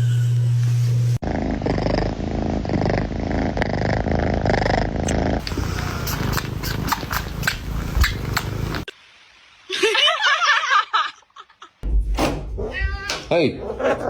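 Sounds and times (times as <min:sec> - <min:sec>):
cat purring: 0:01.2 - 0:08.9.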